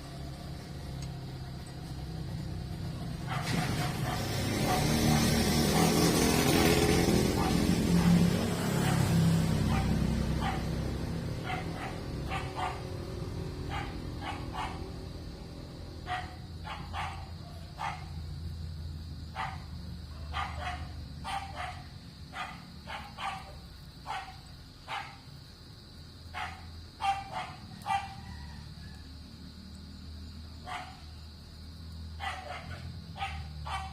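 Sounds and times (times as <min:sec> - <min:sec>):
broad rushing noise: 0:02.8 - 0:15.0
dog barking: 0:03.2 - 0:06.3, 0:07.3 - 0:10.8, 0:11.4 - 0:15.0, 0:16.0 - 0:18.2, 0:19.3 - 0:25.2, 0:26.3 - 0:28.5, 0:30.6 - 0:31.1, 0:32.2 - 0:33.9.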